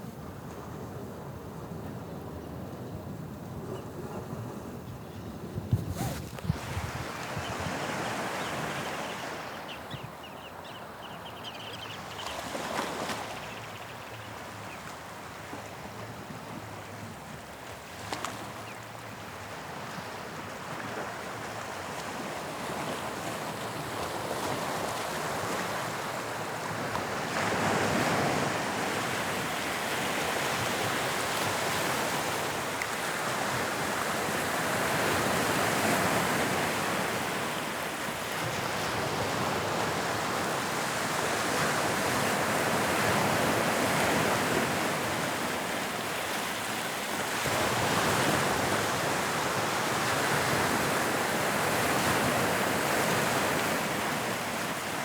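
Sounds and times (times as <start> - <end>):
sea waves breaking on shore: 5.8 - 9.6, 19.6 - 55.0.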